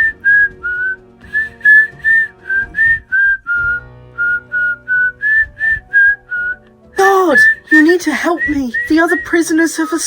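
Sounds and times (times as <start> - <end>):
person whistling a tune: 0.0 - 10.0.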